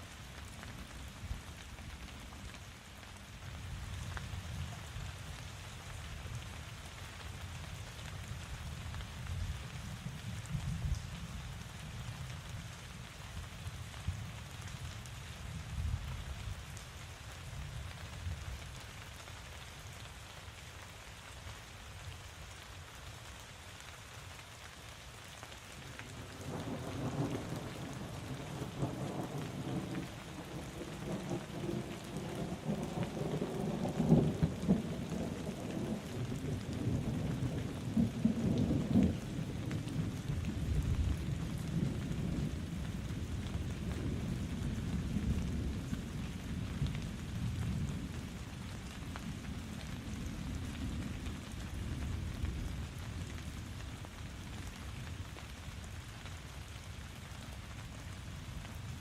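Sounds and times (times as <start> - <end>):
steady rain: 0.0 - 59.0
thunder rumbling: 26.2 - 46.2.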